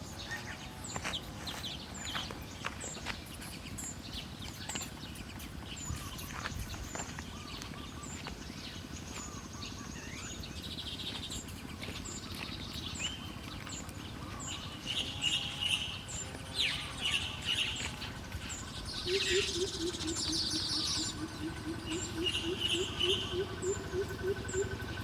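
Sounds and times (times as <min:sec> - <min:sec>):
birds chattering: 0:00.0 - 0:25.0.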